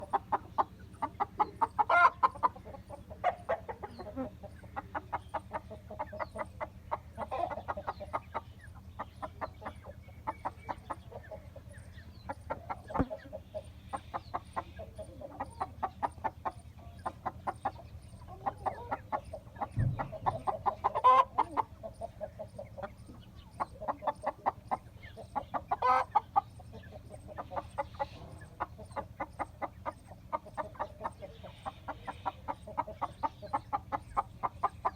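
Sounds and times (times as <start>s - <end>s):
chickens clucking: 0.0s - 34.9s
loud chicken calls: 1.1s - 8.4s, 12.4s - 29.8s.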